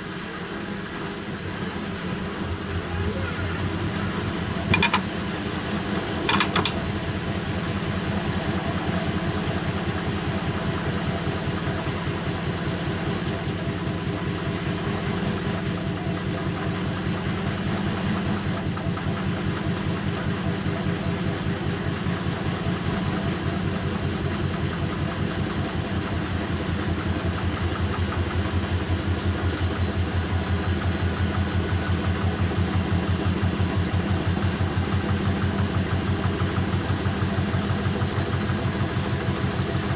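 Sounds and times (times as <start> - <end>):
washing machine motor hum: 0.0 - 39.9
washing machine click: 4.6 - 5.2, 6.0 - 6.9.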